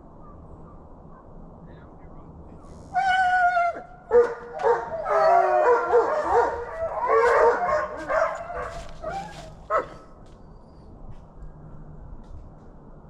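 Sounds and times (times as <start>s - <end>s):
hounds howling and yelping: 2.9s - 10.1s.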